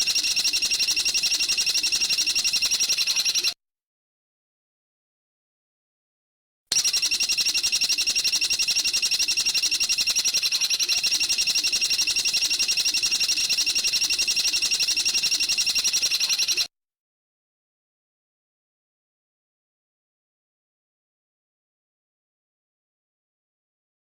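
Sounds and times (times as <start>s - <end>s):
bird high-pitched rapid trill: 0.0s - 3.6s, 6.7s - 16.7s.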